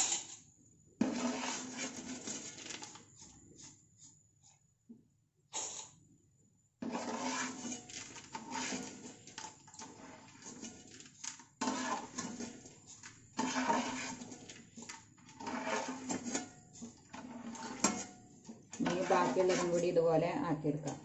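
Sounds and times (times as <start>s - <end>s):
oil sizzling in a frying pan: 6.8s - 16.2s.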